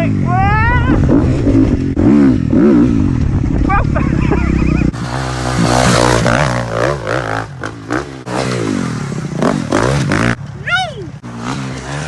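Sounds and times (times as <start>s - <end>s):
motocross bike engine revving: 0.0s - 10.6s, 11.2s - 12.0s.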